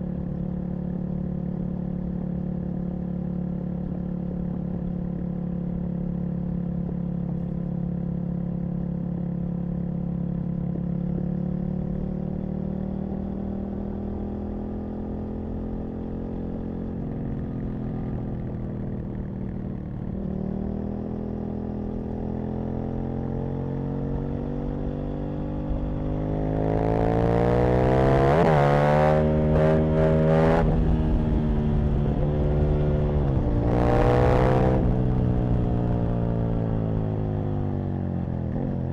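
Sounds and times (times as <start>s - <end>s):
motorcycle engine accelerating: 0.0s - 38.9s
wind noise: 27.5s - 36.8s.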